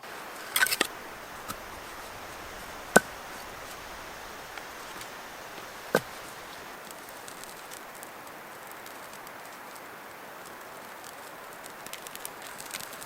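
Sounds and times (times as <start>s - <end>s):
steady hiss: 0.0s - 13.0s
firewood chopping strikes: 0.4s - 6.8s.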